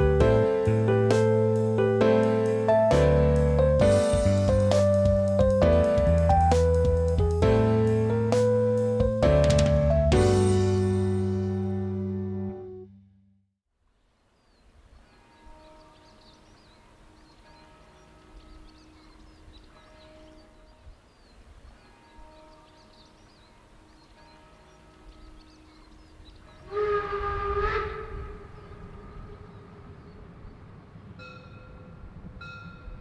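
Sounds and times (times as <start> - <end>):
train rumble: 2.7 - 11.0, 26.6 - 33.0
steam locomotive whistle: 26.6 - 30.2.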